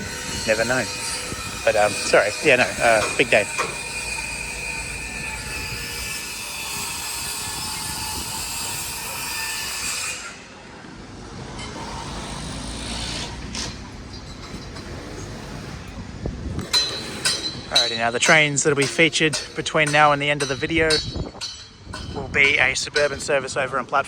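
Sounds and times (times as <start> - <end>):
thin wheel squeal: 0.0 - 10.4
train wheels on rails: 0.1 - 7.0, 10.9 - 24.0.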